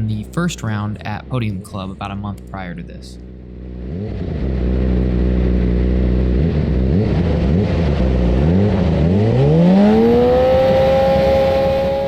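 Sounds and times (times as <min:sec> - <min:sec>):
motorcycle engine revving: 0:03.2 - 0:12.0.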